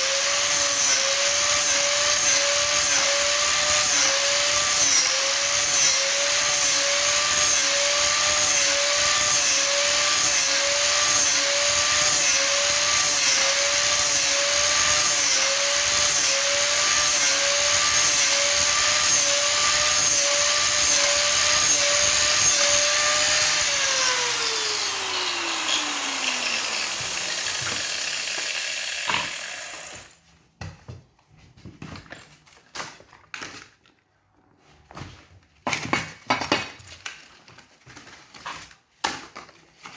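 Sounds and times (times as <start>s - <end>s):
power tool motor running: 0.1s - 30.2s.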